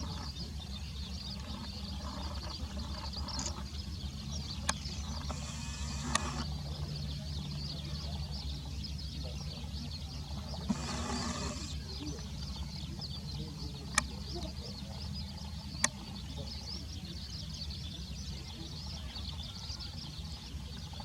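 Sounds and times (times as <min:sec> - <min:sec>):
distant bird calls: 0:00.0 - 0:21.0
sharp clicks: 0:04.6 - 0:06.5, 0:10.7 - 0:11.8.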